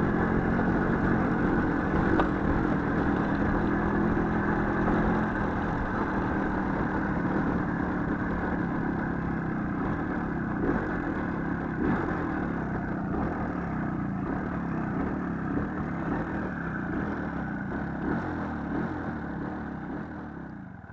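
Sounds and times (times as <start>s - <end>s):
small motorcycle engine running: 0.0s - 20.9s.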